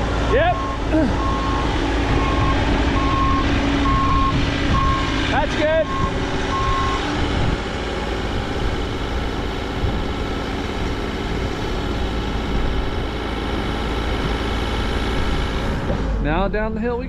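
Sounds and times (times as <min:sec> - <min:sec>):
diesel engine running: 0:00.0 - 0:17.0
backup alarm beeping: 0:00.3 - 0:05.2, 0:05.8 - 0:07.0.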